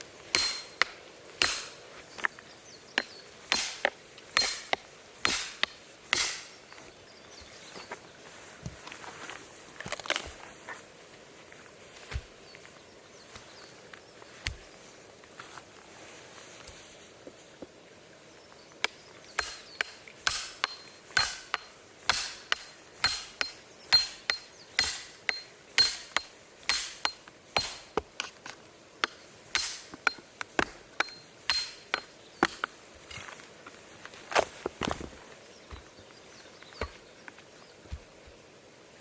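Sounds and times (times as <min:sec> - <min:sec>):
sharp ringing knocks: 0:00.3 - 0:01.8, 0:03.0 - 0:06.6, 0:19.4 - 0:27.9, 0:29.5 - 0:32.6.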